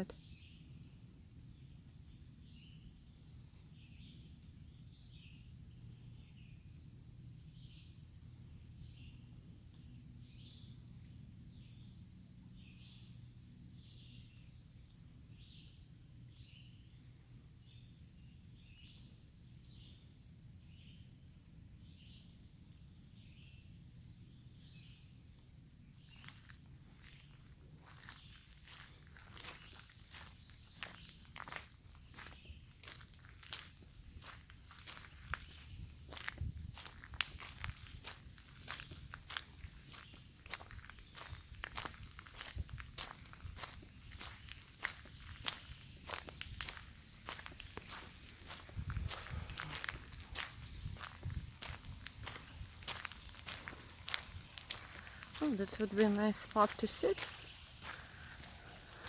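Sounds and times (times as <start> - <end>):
insect chorus drone: 0.0 - 59.0
short insect chirps: 0.0 - 59.0
footsteps: 27.9 - 59.0.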